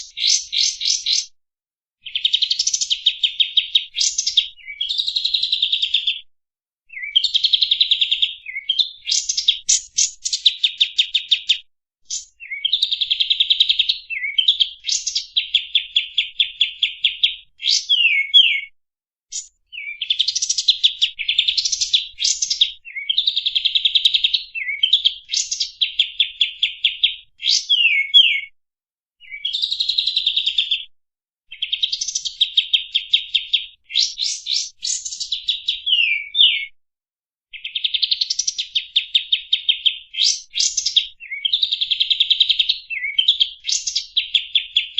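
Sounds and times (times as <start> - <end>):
songbird chirps and trills: 0.0 - 1.3, 6.9 - 18.7, 19.3 - 28.5.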